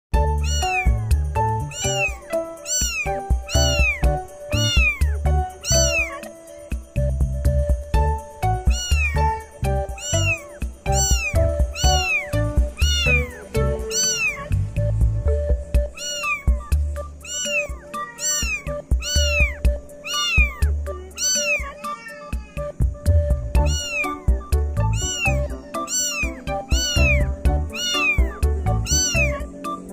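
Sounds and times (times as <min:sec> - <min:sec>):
background music with steady beat: 0:00.1 - 0:29.9
kitten meowing: 0:00.3 - 0:06.4, 0:08.5 - 0:14.6, 0:15.8 - 0:22.8, 0:23.5 - 0:29.6.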